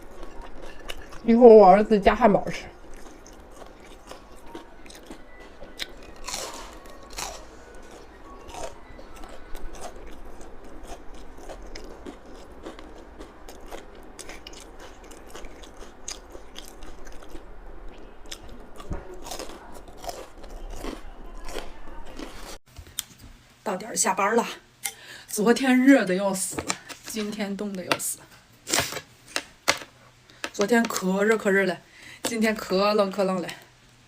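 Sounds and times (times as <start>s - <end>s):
chewing: 0.0s - 1.6s, 2.2s - 23.1s
crunching bites of fried food: 2.9s - 17.5s, 18.2s - 22.6s.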